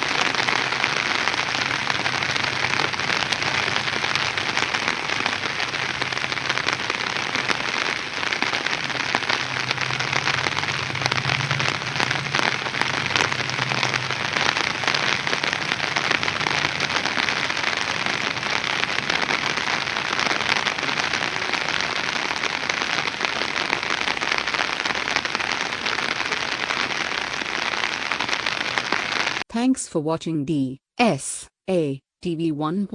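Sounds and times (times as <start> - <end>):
heavy rain falling: 0.0 - 29.4.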